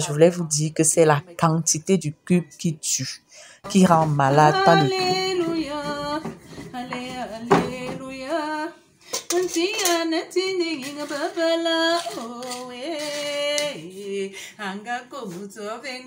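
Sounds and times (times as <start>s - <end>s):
woman singing slow melody: 4.4s - 16.0s
kitchen utensils clinking: 9.1s - 10.1s, 10.7s - 13.8s.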